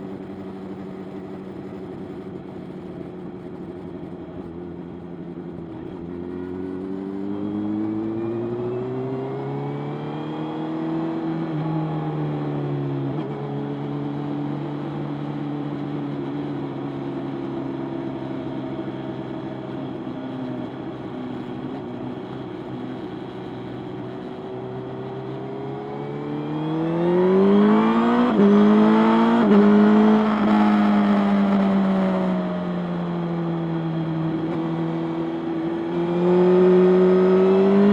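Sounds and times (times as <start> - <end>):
motorcycle engine revving: 26.0 - 37.9.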